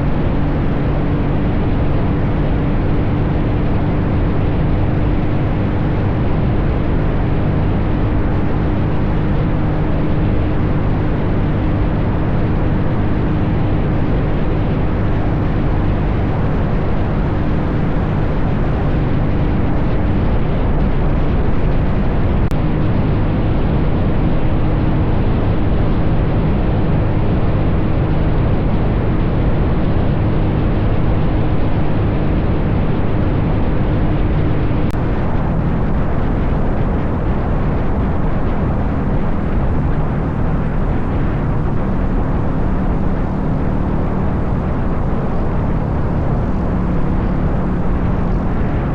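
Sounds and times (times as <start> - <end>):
wind buffeting microphone: 0.0 - 48.9
dirt bike engine running: 33.3 - 48.9.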